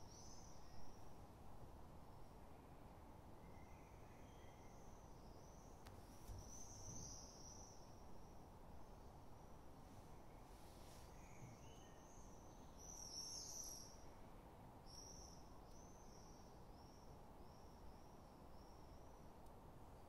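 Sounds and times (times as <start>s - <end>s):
faint high bird chirps: 3.4s - 8.0s, 11.0s - 14.1s, 14.9s - 19.1s.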